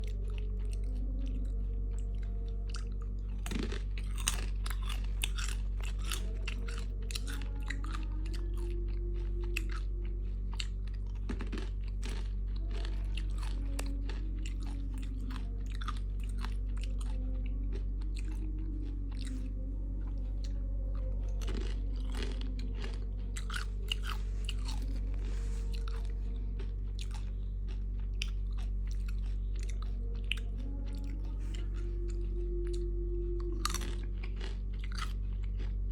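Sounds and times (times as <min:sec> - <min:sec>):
crunching and chewing fried food: 0:00.0 - 0:35.9
steady low hum: 0:00.0 - 0:35.9.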